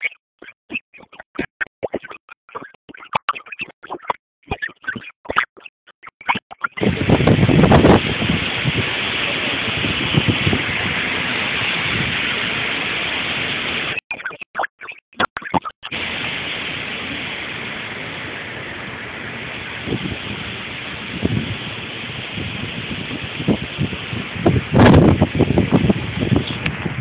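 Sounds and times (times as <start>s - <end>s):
strong wind blowing: 6.8s - 14.0s, 15.9s - 27.0s
wind buffeting microphone: 6.8s - 14.0s, 15.9s - 27.0s.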